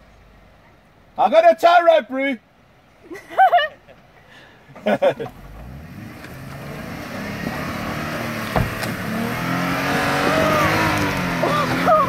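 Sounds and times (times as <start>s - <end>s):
engine working under load: 4.8s - 12.0s.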